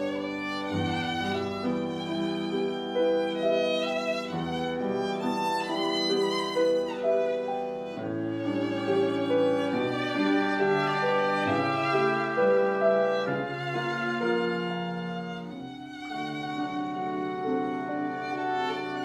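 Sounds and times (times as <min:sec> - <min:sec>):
cello: 0:00.0 - 0:19.0
clarinet: 0:00.0 - 0:19.0
piano: 0:00.0 - 0:19.0
violin melody: 0:00.0 - 0:19.0
oboe: 0:07.9 - 0:19.0.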